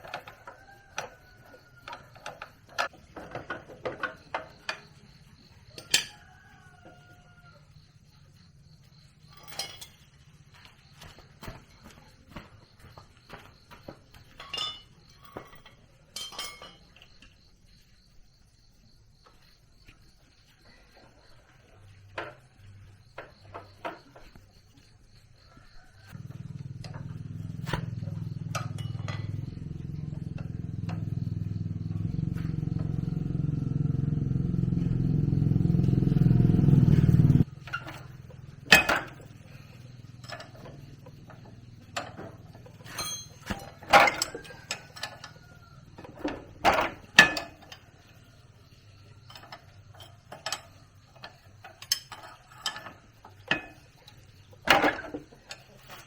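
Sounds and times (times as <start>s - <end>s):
sharp clinks and knocks: 0.0s - 6.5s, 8.9s - 12.0s, 12.8s - 17.5s, 26.0s - 31.6s, 37.4s - 56.0s
small engine running: 26.2s - 38.7s.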